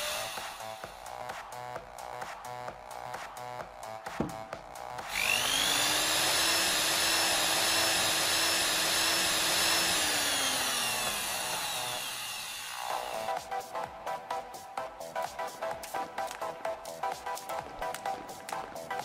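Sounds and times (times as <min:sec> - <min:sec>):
cordless drill motor whining: 0:00.0 - 0:01.0, 0:05.0 - 0:13.4.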